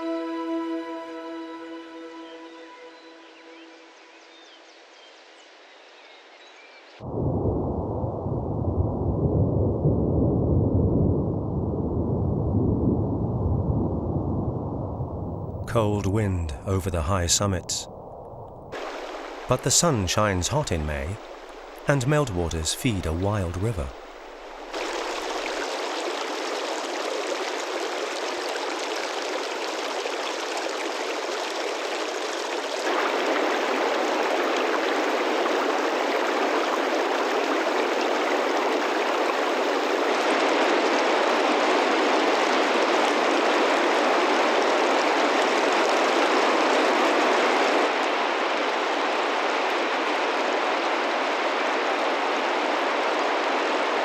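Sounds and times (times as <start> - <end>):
mountain river rushing: 15.6 - 17.9, 18.7 - 54.0.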